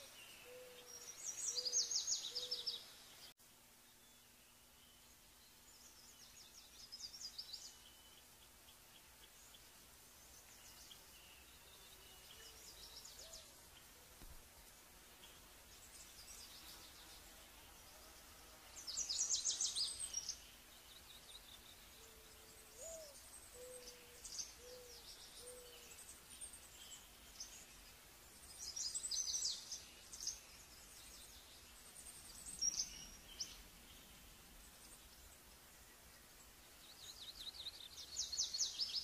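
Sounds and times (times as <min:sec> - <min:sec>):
bird chirps: 0:00.0 - 0:03.3, 0:05.7 - 0:14.3, 0:15.2 - 0:39.0.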